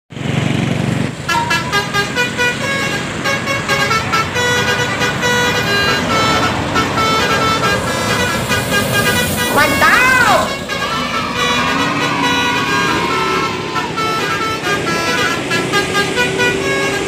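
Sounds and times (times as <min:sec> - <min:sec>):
bus horn playing a tune: 0:01.1 - 0:17.0
low rumble: 0:06.0 - 0:14.6.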